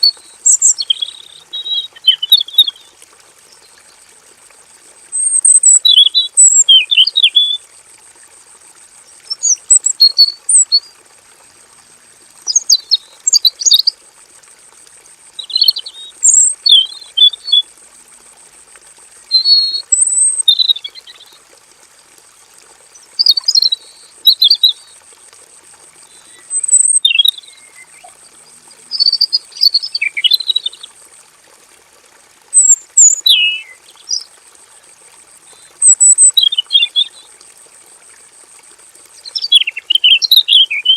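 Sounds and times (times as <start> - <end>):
bird singing warbling phrases: 0.0 - 3.0, 5.2 - 7.6, 9.3 - 10.9, 12.4 - 13.9, 15.4 - 17.7, 19.3 - 21.4, 23.2 - 24.9, 26.1 - 30.9, 32.6 - 34.3, 35.6 - 37.3, 39.2 - 40.9.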